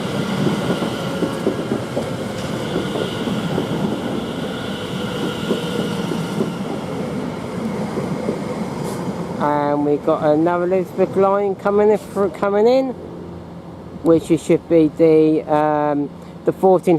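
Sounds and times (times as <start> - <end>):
electric train whine: 0.0 - 9.4.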